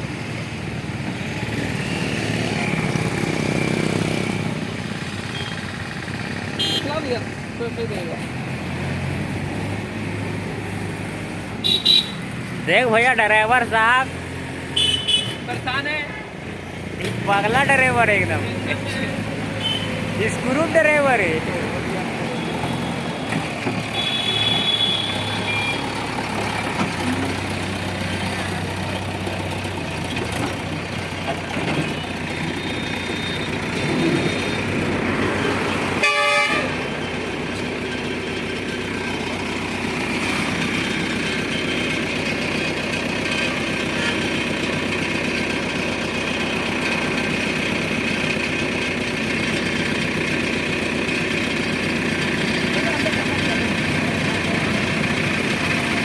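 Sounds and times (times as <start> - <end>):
heavy vehicle diesel engines: 0.0 - 56.0
horn blast: 36.0 - 36.9.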